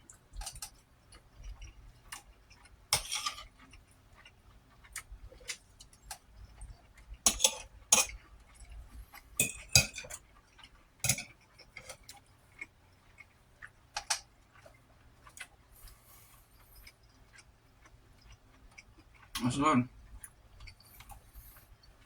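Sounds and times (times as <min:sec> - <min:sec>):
cutlery clinking on a plate: 0:03.0 - 0:03.5, 0:07.3 - 0:08.2, 0:09.4 - 0:10.2, 0:11.0 - 0:12.0.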